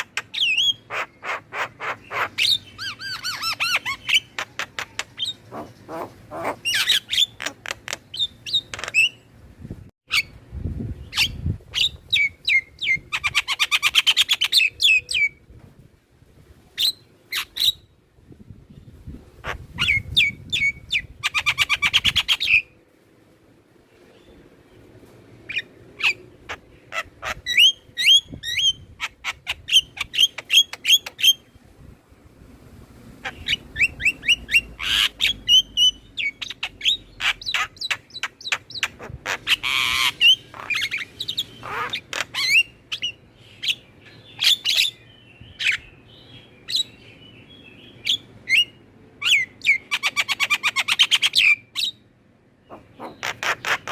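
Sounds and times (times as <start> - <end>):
harsh grating bird calls: 0.0 - 9.3, 25.4 - 31.5, 33.2 - 52.0, 52.6 - 53.9.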